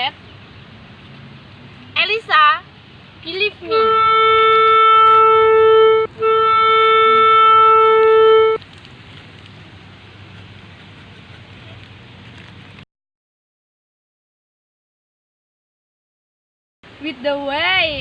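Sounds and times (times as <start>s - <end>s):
reedy held musical note: 3.7s - 8.6s.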